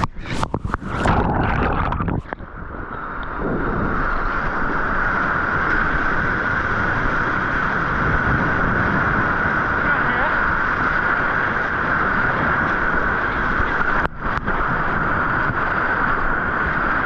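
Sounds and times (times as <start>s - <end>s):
whitewater rushing: 0.0s - 2.4s
water splashing around kayak: 0.0s - 17.0s.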